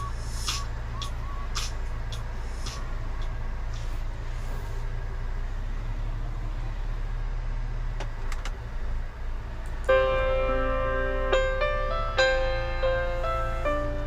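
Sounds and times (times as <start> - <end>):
engine droning: 0.0 - 14.0
sharp clicks: 0.4 - 3.9
piano music: 9.9 - 14.0.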